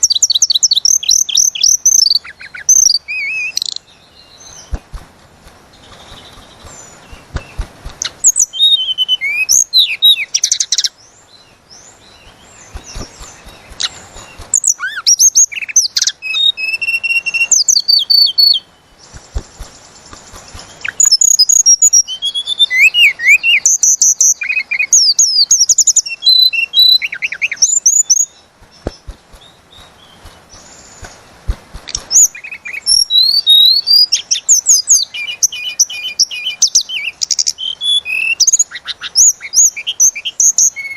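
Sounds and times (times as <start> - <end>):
songbird whistles and trills: 0.0 - 5.0, 5.7 - 40.9.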